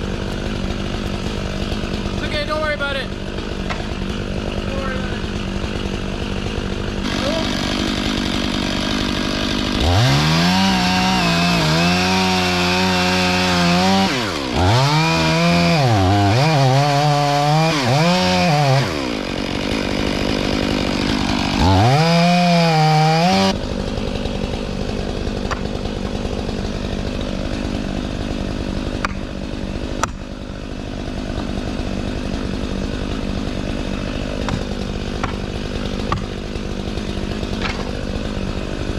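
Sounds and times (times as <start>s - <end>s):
chainsaw revving: 0.0s - 38.9s
sharp knocks: 30.0s - 30.2s, 34.4s - 35.4s, 36.0s - 36.3s.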